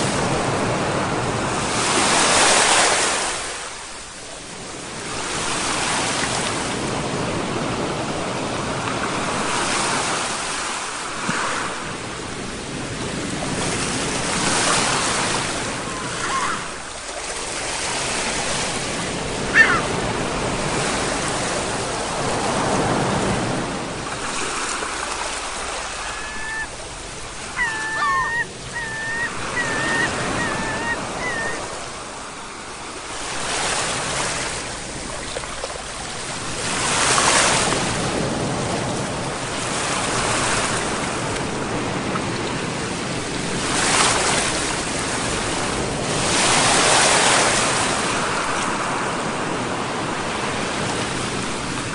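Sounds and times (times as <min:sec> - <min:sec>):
sea waves surging: 0:00.0 - 0:51.9
bird calling: 0:15.8 - 0:16.9, 0:19.3 - 0:20.3, 0:25.6 - 0:32.0.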